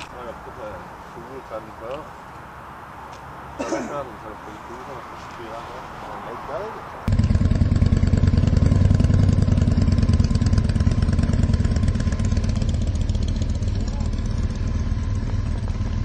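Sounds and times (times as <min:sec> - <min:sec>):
motorcycle engine idling: 0:07.1 - 0:16.0.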